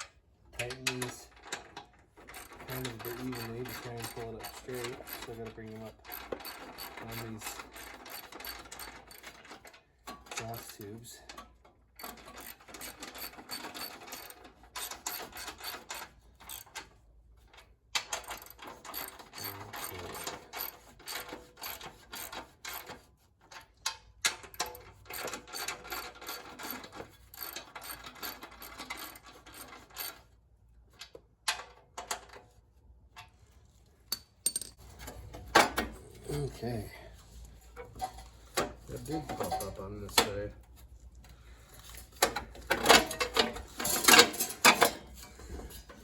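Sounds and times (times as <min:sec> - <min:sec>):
ratchet wrench clicking: 0:02.3 - 0:05.4, 0:06.0 - 0:09.4.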